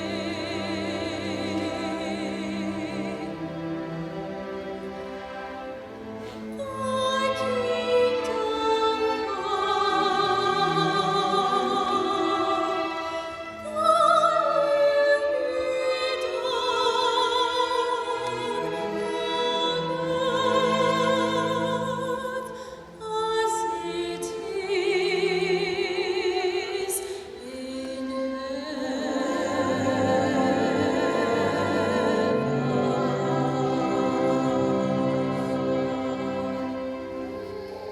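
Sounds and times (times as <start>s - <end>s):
woman singing with vibrato: 6.6s - 36.8s.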